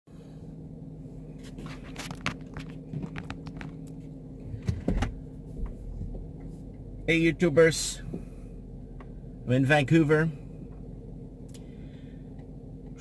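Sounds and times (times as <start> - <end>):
car engine idling: 0.1 - 13.0.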